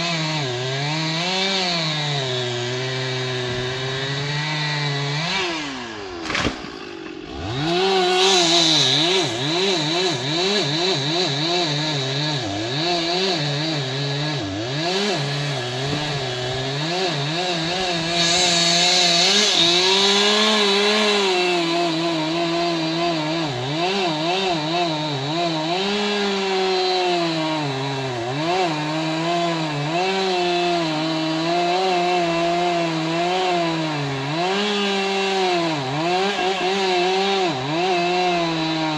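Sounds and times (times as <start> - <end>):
chainsaw cutting wood: 0.0 - 38.9
chainsaw click: 6.1 - 6.9.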